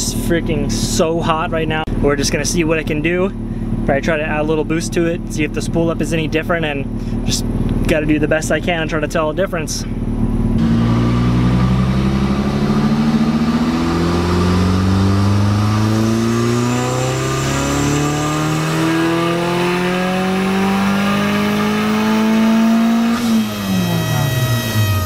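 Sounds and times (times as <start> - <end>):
car engine revving at full throttle: 10.0 - 25.0.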